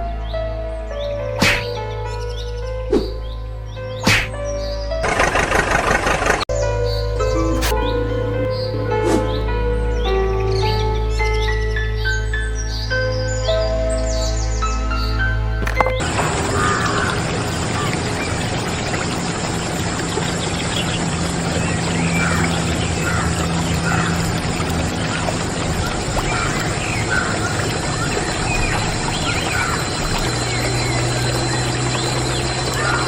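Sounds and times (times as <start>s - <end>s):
short high squeaks: 7.4s - 8.7s
water pouring from toy pump: 15.6s - 33.0s.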